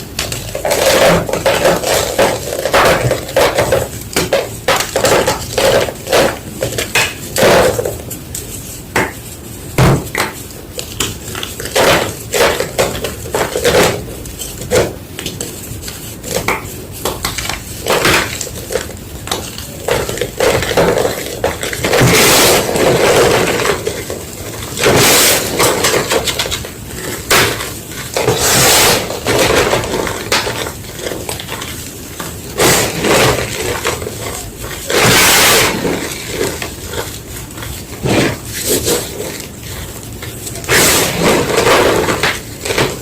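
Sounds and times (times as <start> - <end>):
chalk crunching: 26.5 - 42.8.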